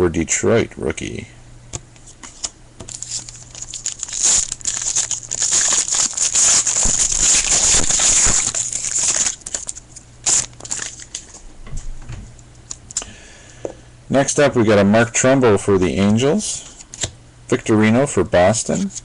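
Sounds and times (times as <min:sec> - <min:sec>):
cards rustling and clicking: 0:02.0 - 0:11.4
wrapper crinkling: 0:02.3 - 0:11.4.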